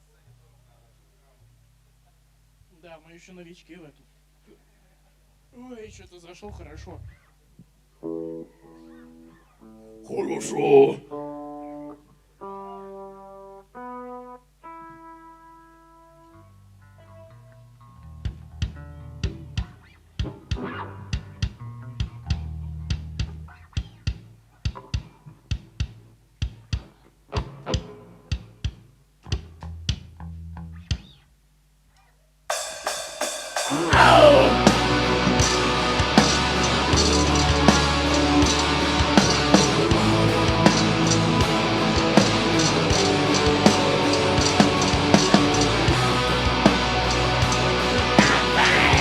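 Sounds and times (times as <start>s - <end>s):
distorted guitars: 5.8s - 31.3s, 32.5s - 49.0s
low bass notes: 5.9s - 7.2s, 20.8s - 24.2s, 33.9s - 49.0s
live metal band playing: 32.5s - 49.0s.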